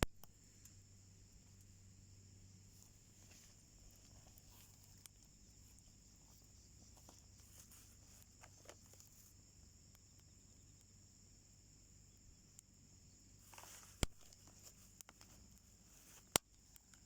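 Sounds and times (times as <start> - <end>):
insect chirring: 0.0 - 17.0
wood fire crackling: 0.0 - 17.0
soft pops: 13.5 - 17.0.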